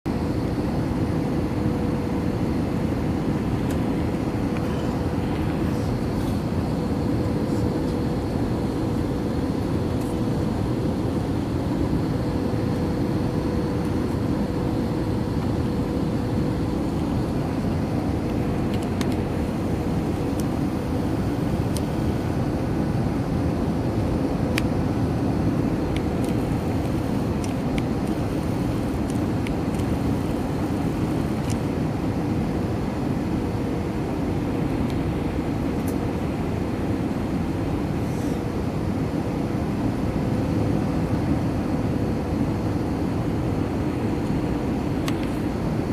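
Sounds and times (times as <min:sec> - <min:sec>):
airplane cabin roar: 0:00.1 - 0:45.9
constant hum: 0:00.1 - 0:45.9.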